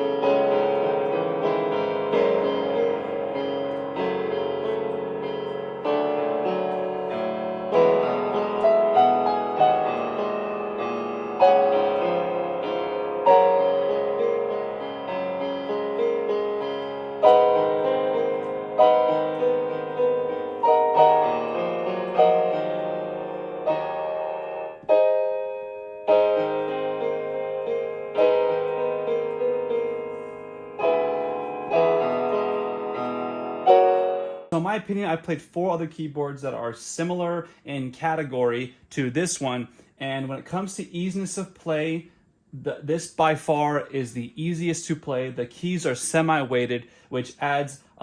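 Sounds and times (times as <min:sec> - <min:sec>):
digital piano playing slow song: 0:00.0 - 0:34.6.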